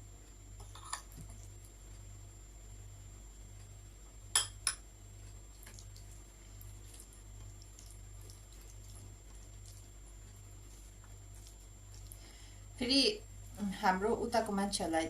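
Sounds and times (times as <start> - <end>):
faint eating ticks: 5.1 - 13.6.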